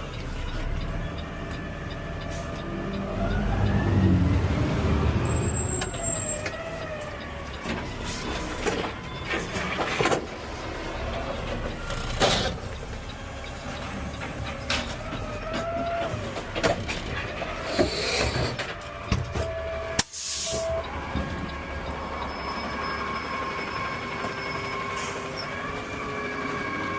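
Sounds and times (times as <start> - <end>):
truck engine low rumble: 0.0 - 26.9
clanks and rattles: 11.1 - 19.6.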